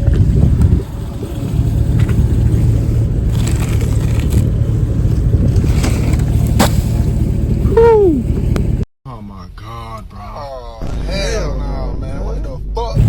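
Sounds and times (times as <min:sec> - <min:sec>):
car driving rumble: 0:00.0 - 0:08.8
road and wind noise: 0:00.0 - 0:08.9
short cracks and scrapes: 0:03.2 - 0:07.2.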